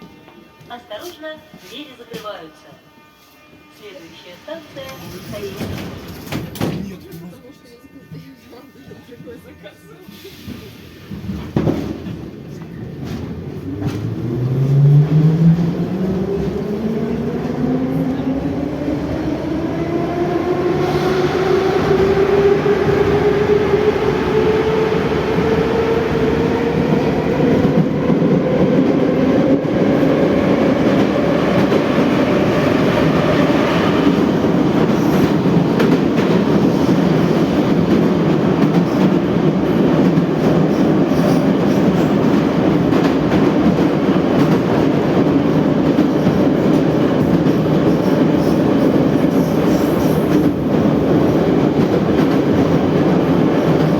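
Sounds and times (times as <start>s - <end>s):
train rumble: 10.2s - 53.9s
train wheels clattering on rails: 33.7s - 53.9s.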